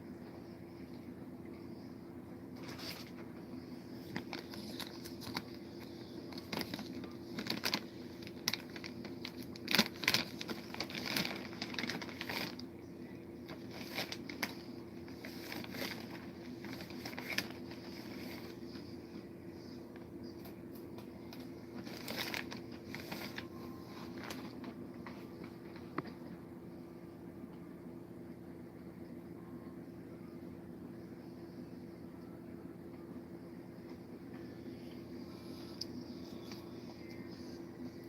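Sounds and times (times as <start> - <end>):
steady low hum: 0.0 - 38.0
plastic snack packet crinkling: 4.0 - 12.7, 13.5 - 18.8, 21.3 - 24.8.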